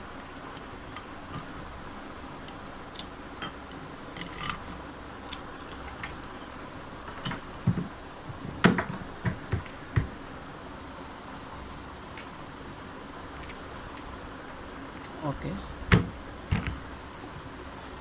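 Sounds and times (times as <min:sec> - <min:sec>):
small metal parts clinking: 0:02.5 - 0:07.6.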